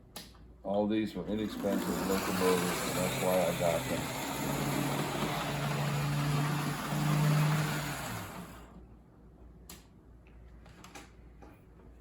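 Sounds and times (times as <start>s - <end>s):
model train motor whirring: 1.3s - 8.7s.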